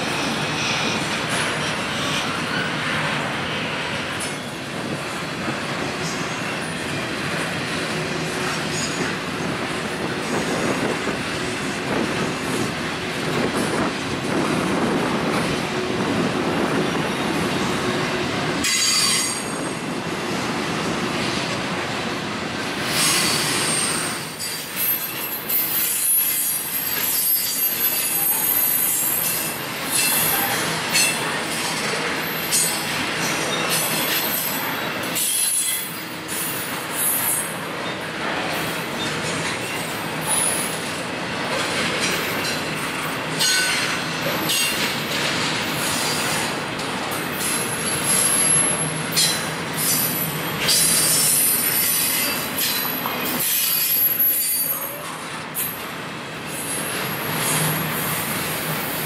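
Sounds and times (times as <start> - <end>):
train wheels rumbling and clattering: 0.0 - 59.0
high-pitched wheel squeal: 23.0 - 29.4.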